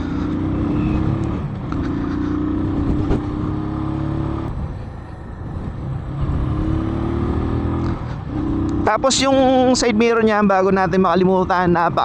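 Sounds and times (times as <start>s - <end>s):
motorcycle engine accelerating: 0.0s - 9.7s.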